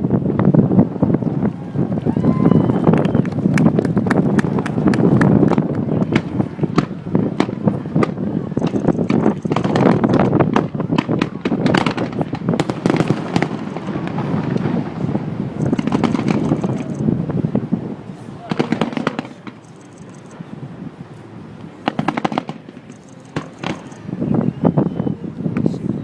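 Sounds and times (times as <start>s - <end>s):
steady low rumble: 0.0s - 26.0s
fireworks crackling pops: 2.8s - 17.8s, 18.4s - 20.4s, 21.6s - 24.1s
fireworks sharp bangs: 3.4s - 20.6s, 21.6s - 24.6s.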